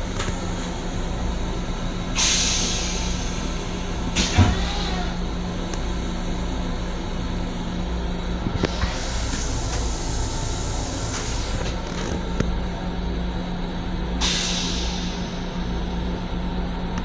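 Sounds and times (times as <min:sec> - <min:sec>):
railcar rumble and hum: 0:00.0 - 0:17.0
air hiss: 0:02.2 - 0:05.0, 0:08.7 - 0:11.7, 0:14.2 - 0:15.5.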